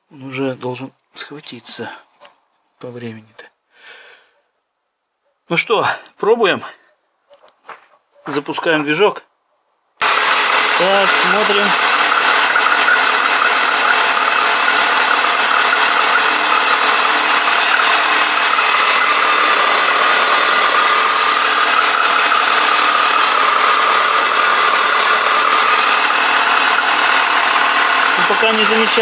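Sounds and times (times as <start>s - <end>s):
car engine idling: 10.0s - 29.0s.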